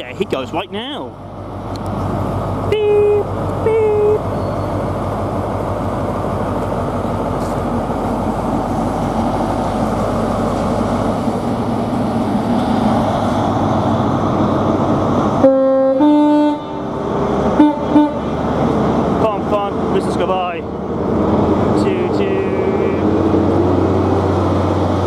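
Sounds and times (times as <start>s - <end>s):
diesel train engine working hard: 0.0s - 25.0s
train horn: 2.7s - 4.3s, 15.4s - 16.9s, 17.5s - 18.3s.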